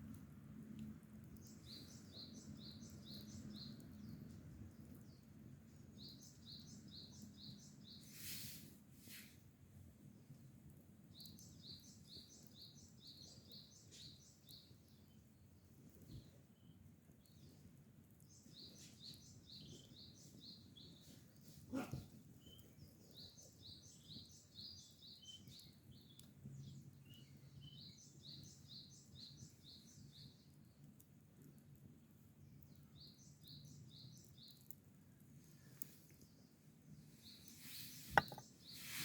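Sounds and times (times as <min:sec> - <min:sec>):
small bird chirping: 0:01.4 - 0:08.5, 0:11.1 - 0:15.3, 0:18.2 - 0:30.8, 0:32.5 - 0:39.0.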